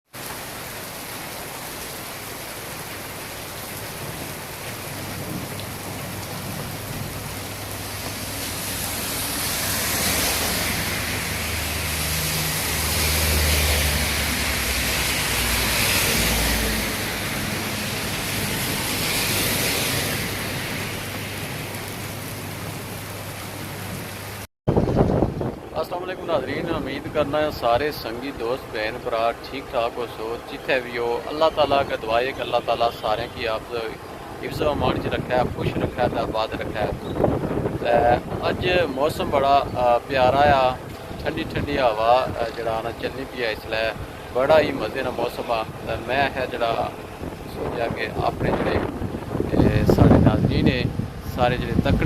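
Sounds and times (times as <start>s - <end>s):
strong wind gusts: 3.9s - 28.4s, 34.0s - 52.0s
wind buffeting microphone: 24.7s - 27.3s, 34.1s - 42.4s, 43.9s - 52.0s.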